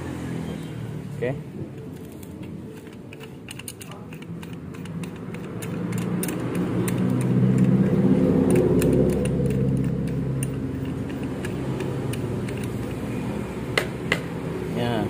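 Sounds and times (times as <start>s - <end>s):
sharp metallic clicks: 1.9s - 13.1s
vehicle engine running: 4.1s - 15.0s.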